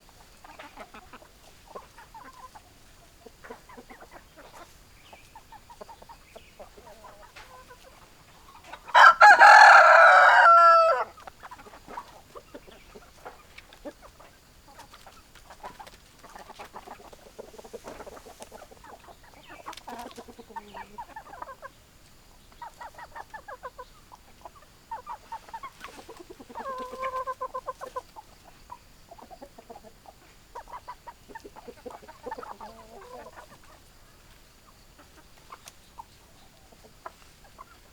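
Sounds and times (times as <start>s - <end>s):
chickens clucking softly: 0.0s - 37.9s
rooster crowing: 8.9s - 11.2s.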